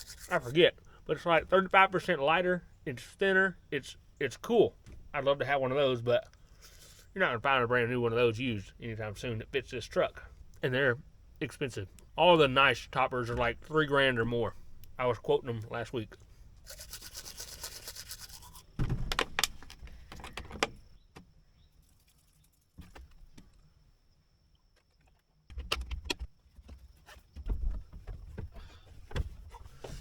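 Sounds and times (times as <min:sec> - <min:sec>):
fast even rasp: 0:00.0 - 0:00.6, 0:16.6 - 0:18.8.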